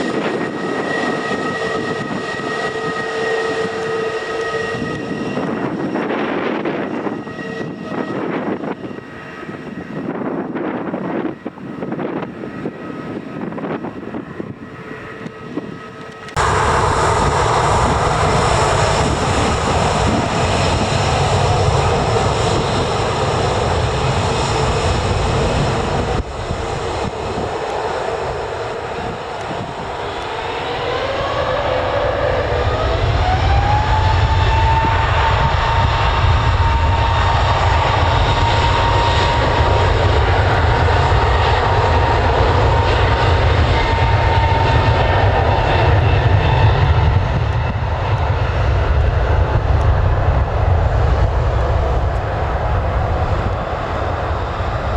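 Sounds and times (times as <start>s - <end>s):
aircraft engines roaring: 0.0s - 54.9s
engine whine rising in pitch: 12.6s - 54.9s.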